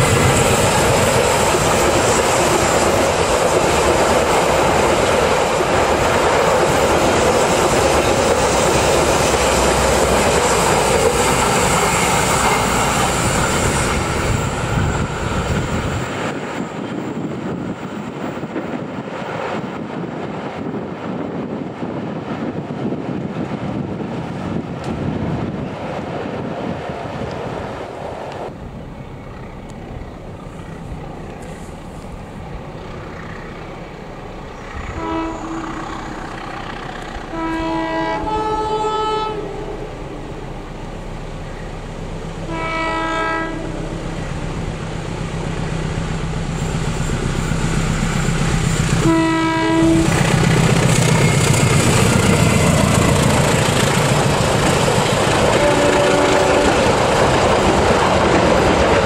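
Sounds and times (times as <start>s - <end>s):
train wheels clacking on track: 0.0s - 27.6s, 44.1s - 59.0s
diesel locomotive engine: 0.0s - 59.0s
locomotive horn blasts: 34.8s - 36.1s, 37.2s - 39.9s, 42.5s - 44.0s, 49.0s - 50.2s, 55.5s - 56.8s.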